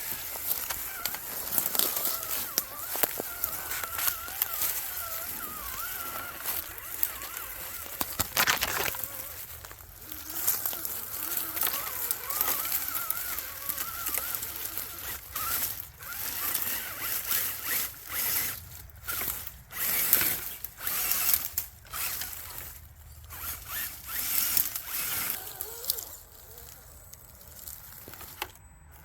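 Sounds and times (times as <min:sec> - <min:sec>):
small electric motor whining: 0:00.0 - 0:29.0.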